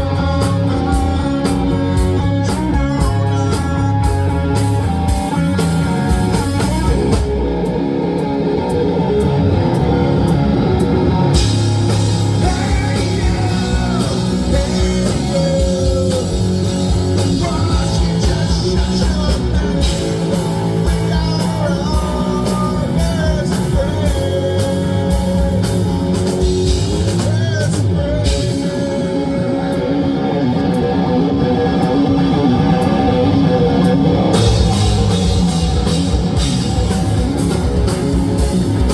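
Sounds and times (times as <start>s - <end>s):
person singing: 0.0s - 7.3s, 11.3s - 31.1s
drum kit: 0.0s - 38.9s
electric guitar: 0.0s - 38.9s
live rock band playing: 0.0s - 38.9s.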